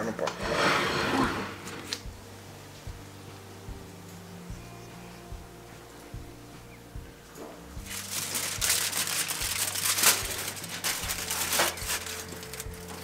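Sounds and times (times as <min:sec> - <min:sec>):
aluminium foil crinkling: 0:07.8 - 0:13.0.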